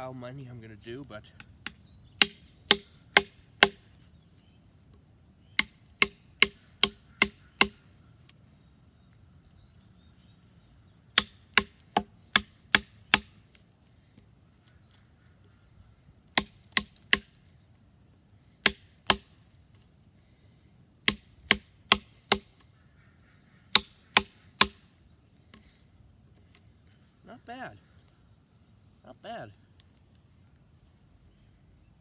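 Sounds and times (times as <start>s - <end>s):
wooden handle hammering knife spine: 1.4s - 3.9s, 5.6s - 7.8s, 11.2s - 13.3s, 18.6s - 19.3s, 21.0s - 22.6s, 23.7s - 24.8s.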